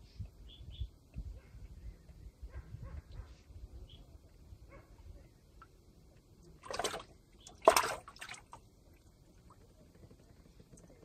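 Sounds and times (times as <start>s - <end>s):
water splashing: 6.5s - 9.6s.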